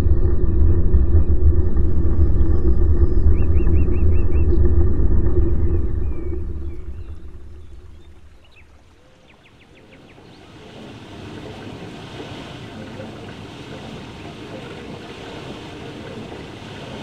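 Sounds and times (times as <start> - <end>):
low rumble: 0.0 - 9.0
ocean water washing: 0.0 - 17.0.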